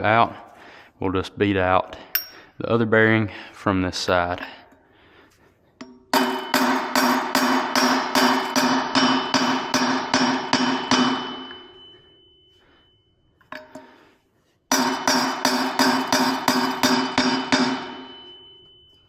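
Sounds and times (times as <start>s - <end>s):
hammer striking metal: 2.1s - 2.4s, 5.8s - 12.5s, 14.7s - 19.0s
metal wheel ringing: 6.1s - 12.5s, 14.7s - 19.0s.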